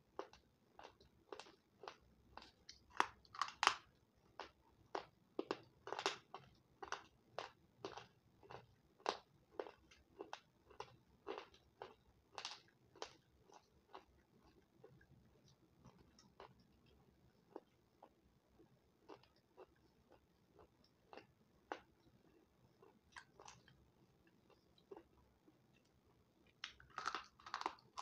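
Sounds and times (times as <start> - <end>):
person crunching brittle pieces: 2.9 - 3.9, 26.6 - 28.0.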